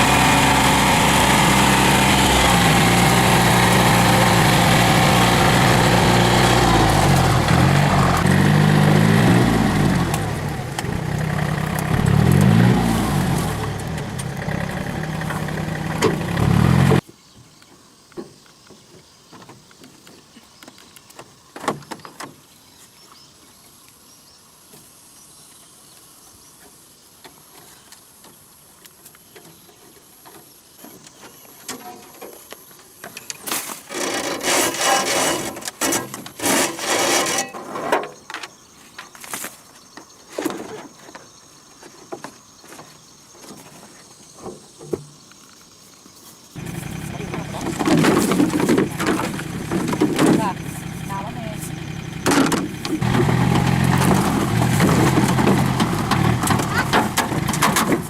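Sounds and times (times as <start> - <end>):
small engine running: 0.0 - 17.0, 46.6 - 58.0
rustling and crackling: 45.3 - 58.0.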